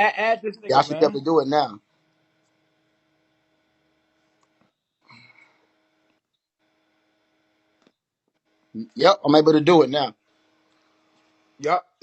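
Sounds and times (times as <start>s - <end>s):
low steady hum: 0.0s - 7.9s.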